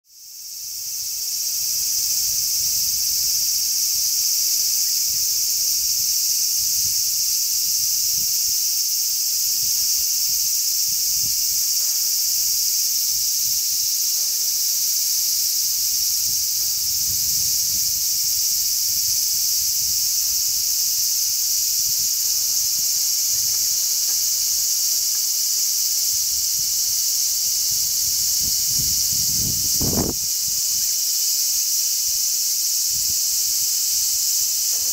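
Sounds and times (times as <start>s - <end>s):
cicadas buzzing: 0.1s - 34.9s
wind rumble on microphone: 16.2s - 20.0s, 27.7s - 30.6s.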